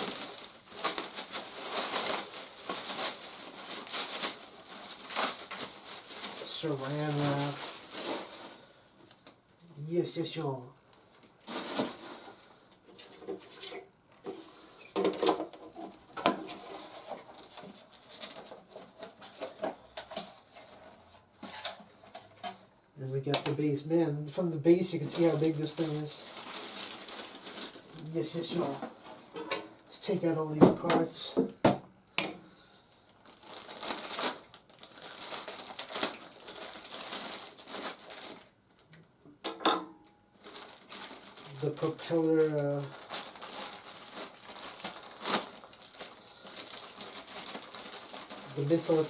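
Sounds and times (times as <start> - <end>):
plastic packaging crinkling: 0.0 - 9.5, 10.3 - 15.9, 24.4 - 31.3, 32.9 - 38.9, 40.3 - 49.0.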